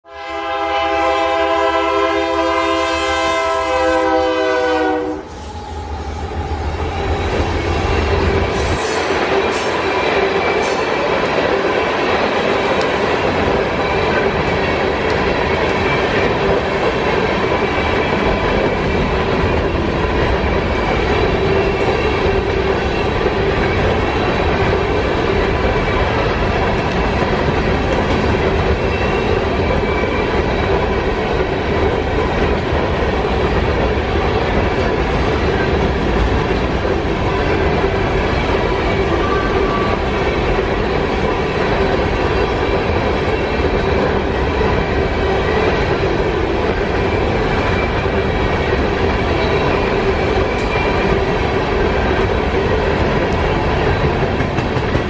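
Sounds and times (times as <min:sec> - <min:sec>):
locomotive air horn: 0:00.0 - 0:06.4
train wheels clattering over rails: 0:04.4 - 0:55.0.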